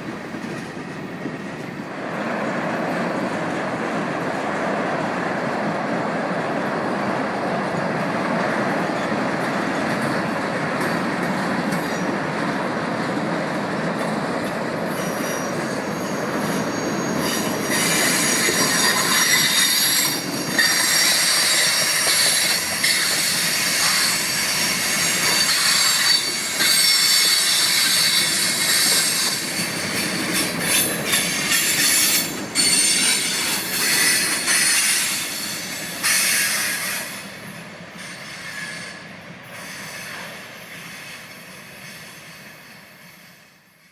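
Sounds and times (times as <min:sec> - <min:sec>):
freight train cars rolling: 0:00.0 - 0:43.5
high-pitched wheel squeal: 0:15.0 - 0:37.1.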